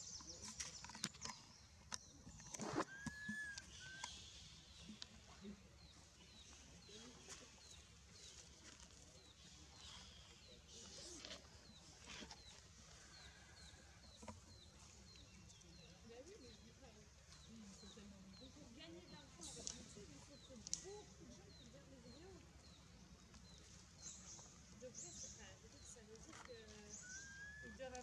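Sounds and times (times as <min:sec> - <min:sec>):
rising whistled bird call: 0:02.6 - 0:04.2, 0:27.0 - 0:27.7.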